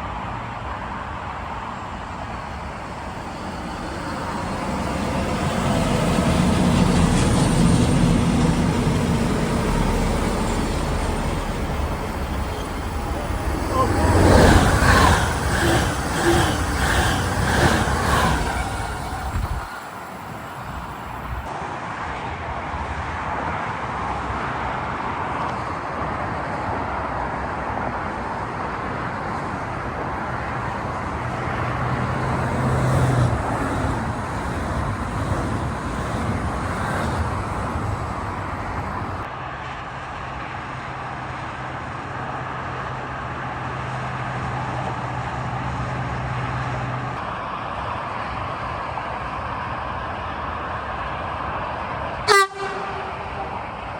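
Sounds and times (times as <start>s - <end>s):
low steady locomotive hum: 0.0s - 21.5s, 25.8s - 39.4s, 48.8s - 53.9s
train wheels rumbling on rails: 0.6s - 21.5s, 29.2s - 39.3s.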